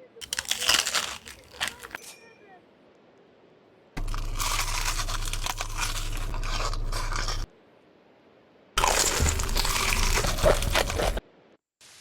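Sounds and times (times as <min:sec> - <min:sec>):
crunchy chewing of food: 0:00.2 - 0:02.0, 0:04.0 - 0:07.5, 0:08.8 - 0:11.2
low hum: 0:04.0 - 0:07.5, 0:08.8 - 0:11.2.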